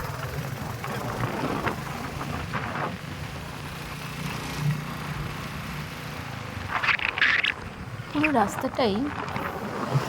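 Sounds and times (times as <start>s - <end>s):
motorcycle engine hum: 0.0s - 9.8s
wind and road noise: 0.0s - 10.0s.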